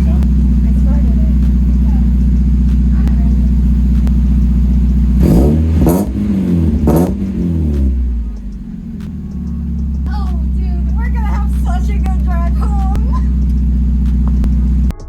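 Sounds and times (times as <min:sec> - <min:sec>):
car engine idling and revving: 0:00.0 - 0:14.9.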